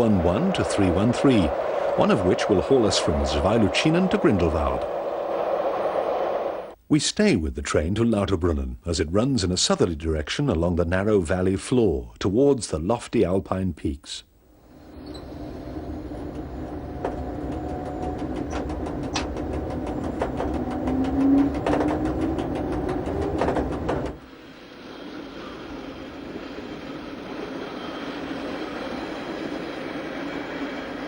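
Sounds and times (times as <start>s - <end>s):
train wheels clicking over rail joints: 0.0s - 6.6s, 15.7s - 24.3s
train rumble: 0.0s - 6.8s, 14.6s - 31.0s
train whine rising in pitch: 0.0s - 6.8s, 14.7s - 31.0s.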